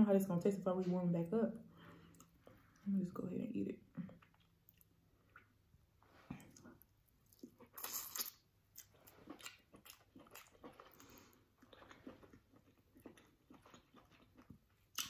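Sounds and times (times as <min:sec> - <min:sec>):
chewing and lip smacking: 0:04.0 - 0:05.6, 0:06.4 - 0:15.0.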